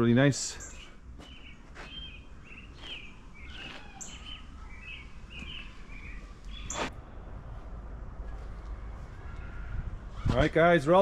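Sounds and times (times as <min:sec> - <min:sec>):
small birds chirping: 0:00.4 - 0:06.9
low background rumble: 0:04.4 - 0:10.3.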